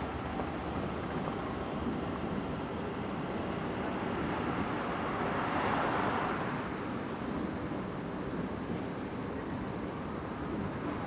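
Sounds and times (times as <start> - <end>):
train wheels rumbling on rail: 0.0 - 4.6.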